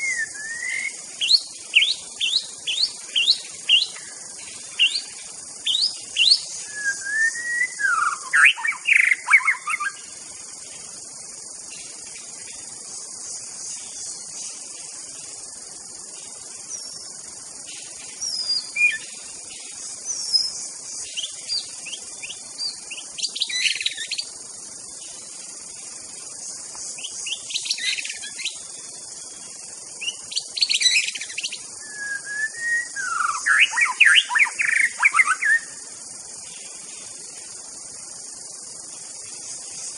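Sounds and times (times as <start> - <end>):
bird singing whistled phrases: 0.0 - 4.1, 4.8 - 10.0, 18.2 - 19.1, 30.0 - 35.8
high insect drone: 0.0 - 39.9.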